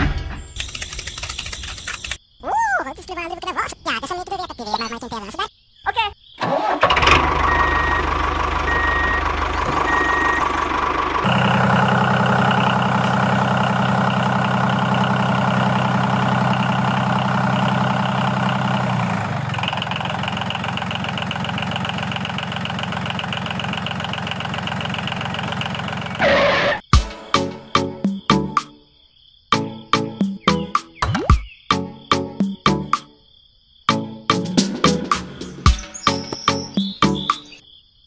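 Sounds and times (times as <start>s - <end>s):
diesel tractor engine running: 6.4s - 26.8s.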